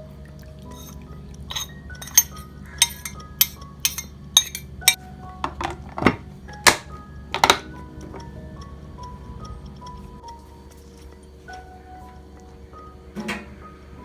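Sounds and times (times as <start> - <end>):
soft background music: 0.0 - 14.0
utensils and dishes clinking: 0.6 - 8.4.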